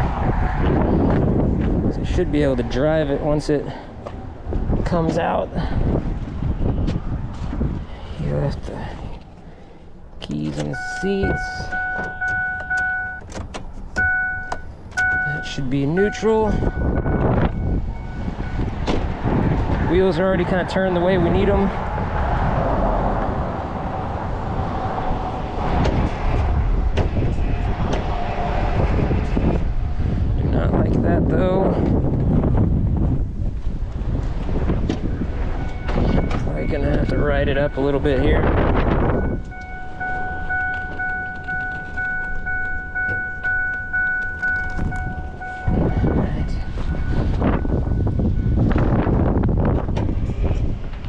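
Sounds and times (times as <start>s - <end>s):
heavy truck engine rumbling: 0.0s - 51.0s
vehicle warning chime beeping: 10.2s - 18.9s, 35.6s - 49.5s.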